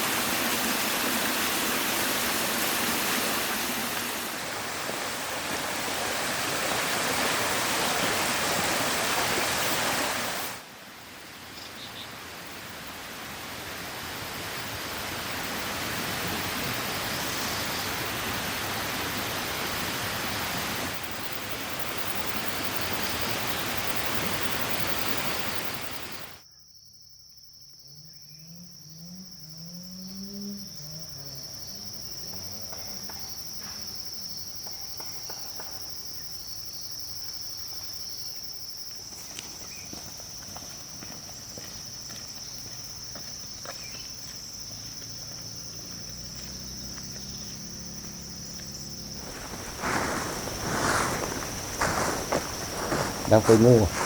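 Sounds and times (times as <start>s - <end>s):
stream water rushing: 0.0s - 11.5s, 12.1s - 26.4s, 49.1s - 54.0s
insects droning: 0.0s - 54.0s.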